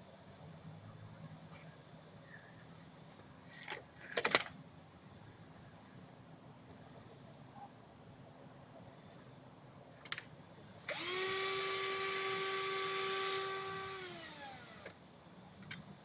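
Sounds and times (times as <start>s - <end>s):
electric drill motor whining: 10.8s - 15.0s.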